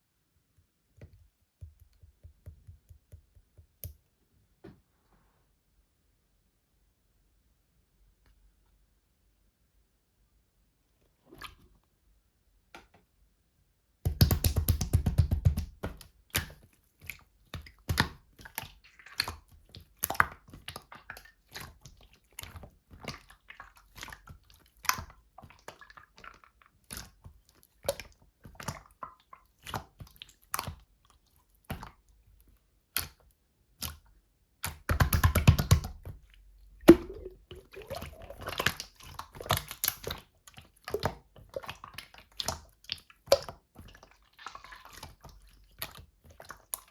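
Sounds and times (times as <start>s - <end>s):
slime squishing: 14.1s - 46.9s
air bubbles popping: 36.8s - 40.1s.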